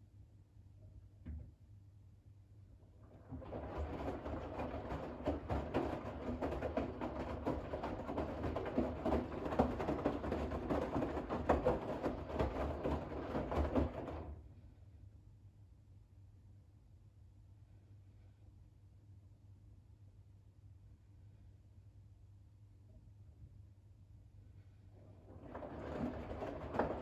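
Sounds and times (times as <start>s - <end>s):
washing machine water sloshing: 3.1s - 14.4s, 25.2s - 27.0s.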